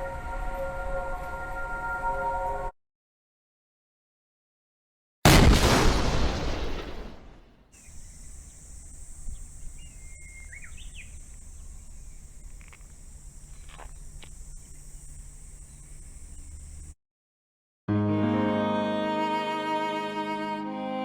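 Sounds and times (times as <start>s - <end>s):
loud boom: 5.3s - 7.6s
bird chirps: 7.8s - 16.9s
insect chorus: 7.8s - 17.0s.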